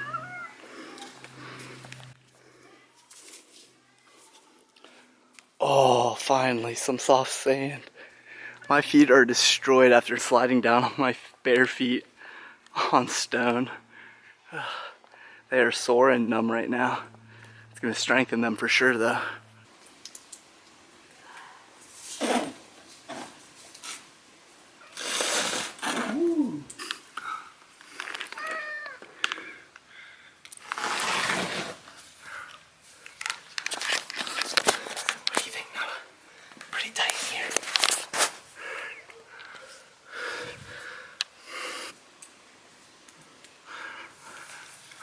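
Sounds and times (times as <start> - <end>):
cat meowing: 0.0 - 1.0, 28.3 - 29.1
soft scuffs and rustles: 1.0 - 4.8, 36.5 - 39.9
person breathing hard: 38.5 - 42.0.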